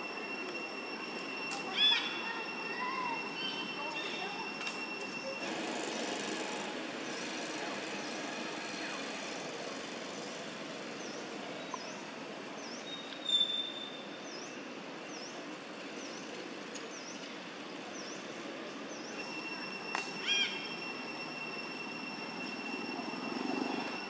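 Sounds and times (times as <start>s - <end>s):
high squeak: 0.0s - 5.6s, 19.1s - 24.0s.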